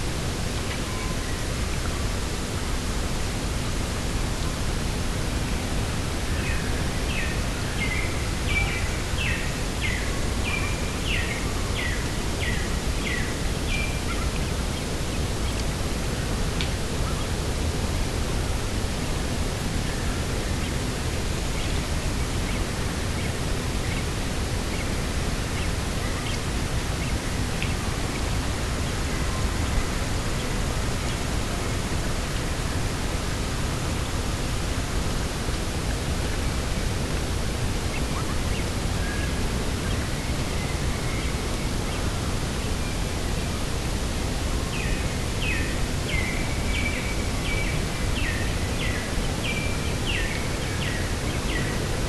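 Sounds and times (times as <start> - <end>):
rushing wind: 0.0 - 52.0.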